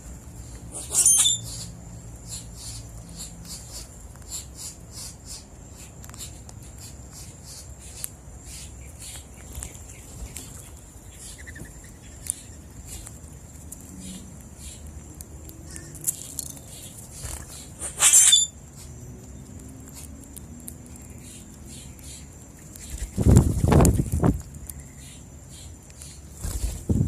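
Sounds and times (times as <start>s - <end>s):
birds chirping: 0.0s - 26.8s
bird harsh call: 0.7s - 1.7s.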